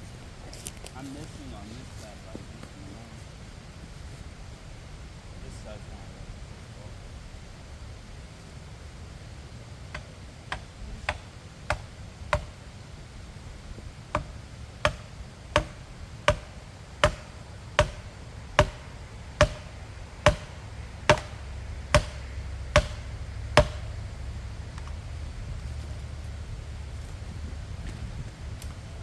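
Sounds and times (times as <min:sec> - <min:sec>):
wedge being hammered into wood: 0:09.9 - 0:12.6, 0:14.1 - 0:24.0.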